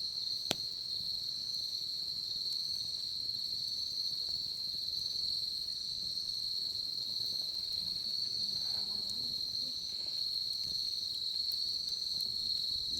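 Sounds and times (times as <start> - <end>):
crickets trilling: 0.0 - 12.9
faint bonfire crackles: 0.0 - 12.9.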